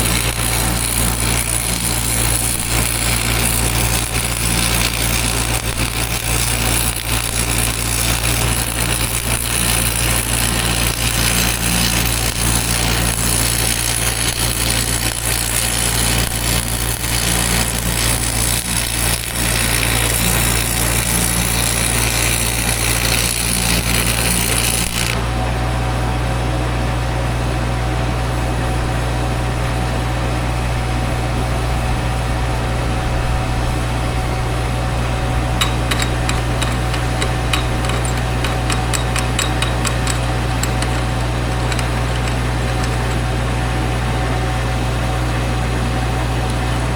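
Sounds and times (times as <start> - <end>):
welding arc crackling: 0.0 - 25.2, 33.7 - 46.8
engine humming: 32.2 - 45.0.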